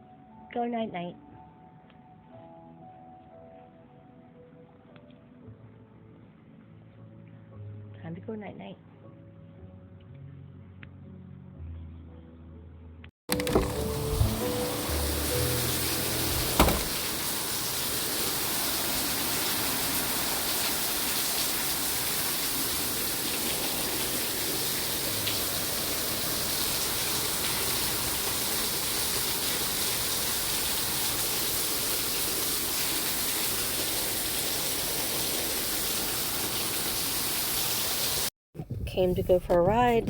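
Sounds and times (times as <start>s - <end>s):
heavy rain: 13.4s - 38.3s.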